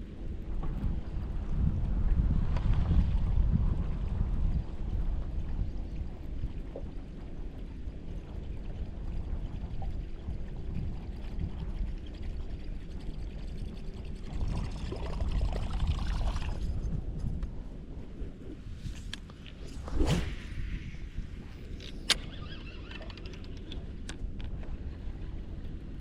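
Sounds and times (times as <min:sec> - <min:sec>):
water sloshing against hull: 0:00.0 - 0:26.0
wind rumbling on microphone: 0:00.0 - 0:26.0.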